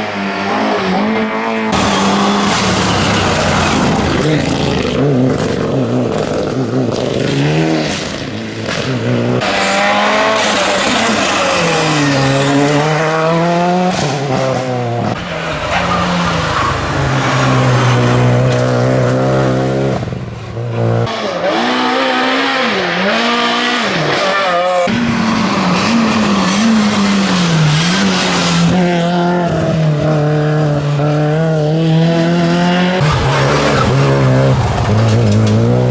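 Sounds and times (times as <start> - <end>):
rally car engines revving: 0.0 - 35.9
tyres squealing: 0.6 - 4.8, 15.2 - 19.4.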